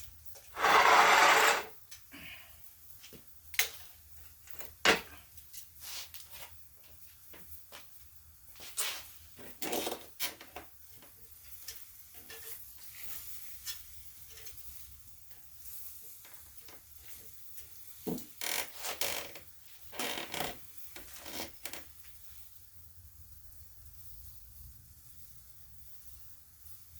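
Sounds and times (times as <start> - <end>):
utensils scraping on grill: 0.6 - 1.8.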